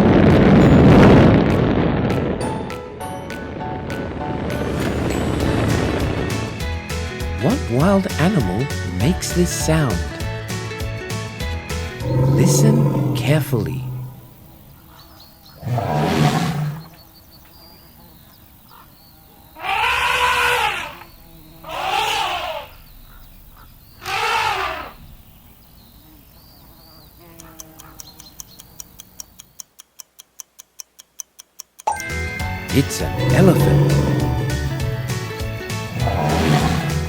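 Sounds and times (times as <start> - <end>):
elephant trumpeting: 12.0 - 13.4, 15.6 - 16.9, 19.6 - 22.9, 24.0 - 25.0, 33.0 - 35.1, 35.9 - 37.0
quick ticks: 27.4 - 32.0.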